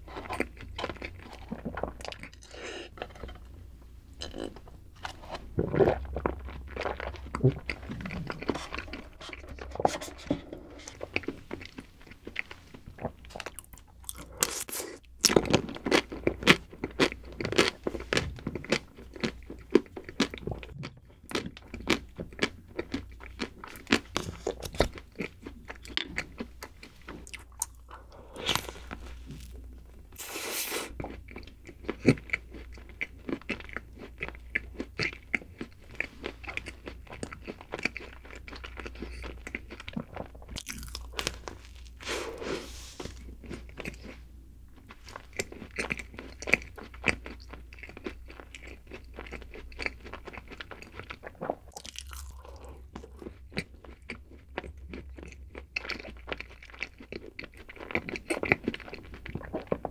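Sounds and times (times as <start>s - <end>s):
chewing snack cake: 0.0s - 3.5s, 4.2s - 59.9s
wet mouth sounds: 12.9s - 15.4s.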